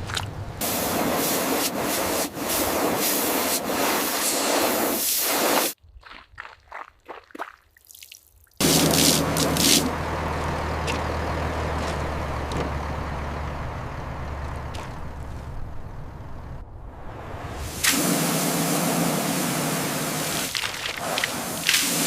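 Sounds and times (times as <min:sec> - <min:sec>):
water spraying: 0:00.0 - 0:05.8, 0:08.6 - 0:10.0, 0:17.4 - 0:22.0
water dripping: 0:05.8 - 0:08.6, 0:20.4 - 0:22.0
low motor hum: 0:08.6 - 0:17.7.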